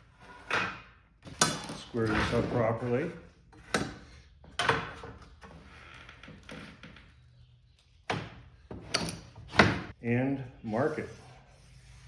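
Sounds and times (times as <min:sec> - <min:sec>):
quiet rubbing on metal: 0:10.4 - 0:12.0.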